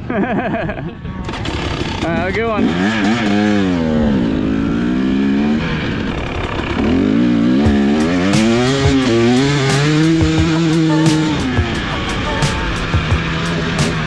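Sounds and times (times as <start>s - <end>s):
dirt bike engine revving: 1.2s - 14.0s
sharp clicks: 7.7s - 14.0s.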